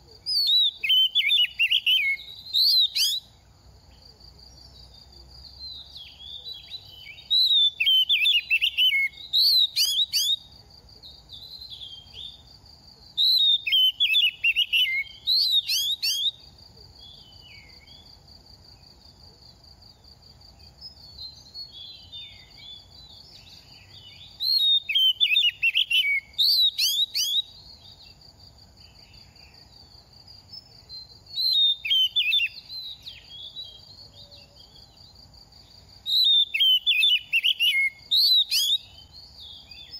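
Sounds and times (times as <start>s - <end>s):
quiet bird calls: 0.0s - 12.5s
bird singing whistled phrases: 0.2s - 3.3s, 5.6s - 10.4s, 13.2s - 16.4s, 21.2s - 27.6s, 31.0s - 33.9s, 36.1s - 39.0s.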